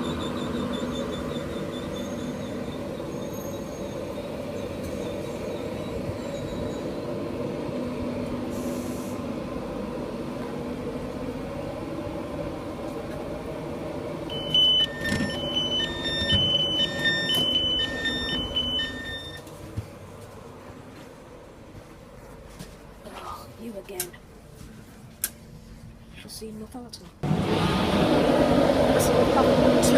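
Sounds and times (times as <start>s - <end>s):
train engine hum: 0.0s - 29.9s
two-tone electronic warning beeps: 14.3s - 19.4s
train doors knocking shut: 14.4s - 19.4s.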